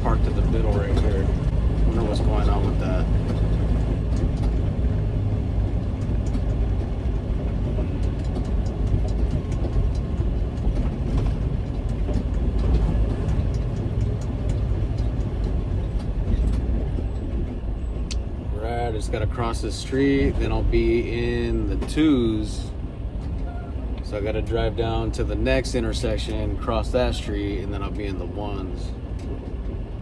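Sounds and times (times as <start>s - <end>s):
truck engine and road rumble: 0.0s - 30.0s
light clicks and rattles: 0.1s - 18.3s.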